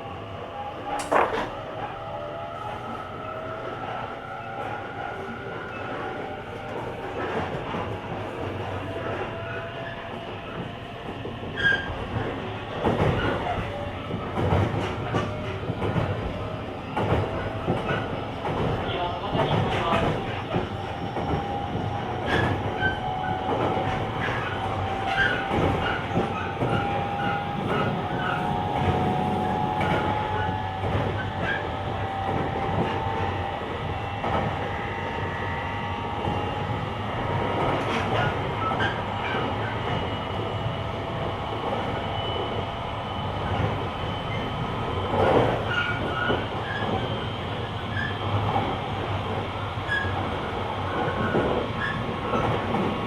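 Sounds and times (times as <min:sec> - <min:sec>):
rail joint clicks: 0:00.9 - 0:01.6, 0:10.2 - 0:31.4
wheels running on rails: 0:25.2 - 0:31.6
train motor whine rising: 0:26.6 - 0:31.0.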